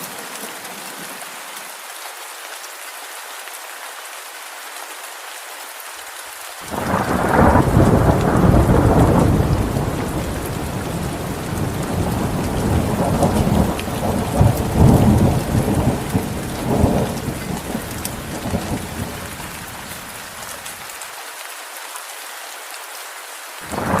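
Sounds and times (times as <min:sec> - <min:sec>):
steady rain hiss: 0:00.0 - 0:24.0
rolling thunder: 0:06.7 - 0:19.7, 0:23.7 - 0:24.0.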